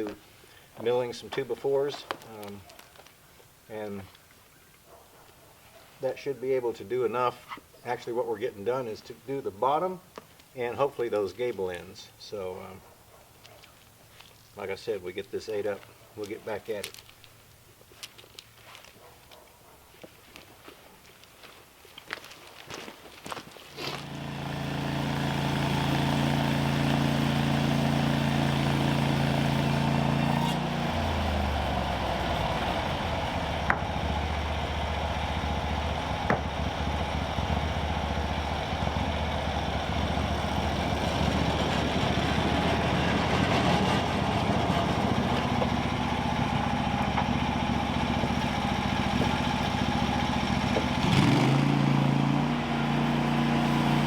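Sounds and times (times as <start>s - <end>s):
saw blade cutting log: 23.8s - 34.2s, 50.6s - 54.0s
sawmill gas engine running: 23.8s - 54.0s.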